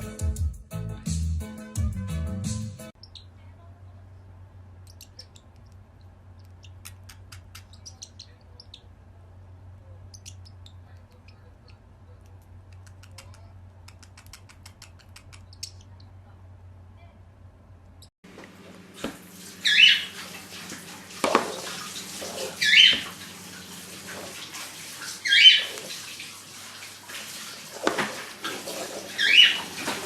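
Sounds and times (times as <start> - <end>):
parrot chirps and clicks: 4.8 - 8.9, 10.0 - 16.2.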